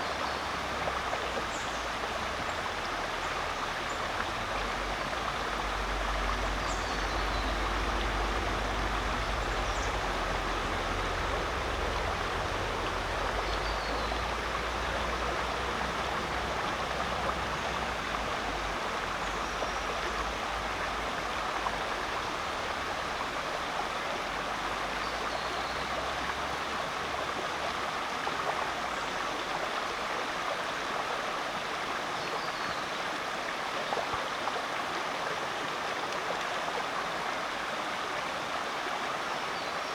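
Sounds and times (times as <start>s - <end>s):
creek flowing over rocks: 0.0s - 39.9s.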